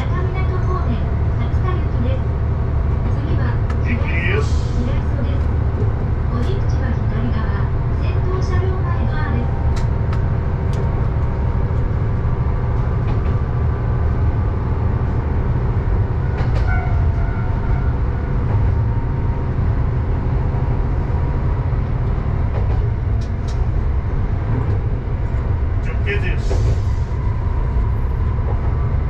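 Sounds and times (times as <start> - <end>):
railcar engine drone: 0.0 - 29.0
wheel and rail rumble: 0.0 - 29.0.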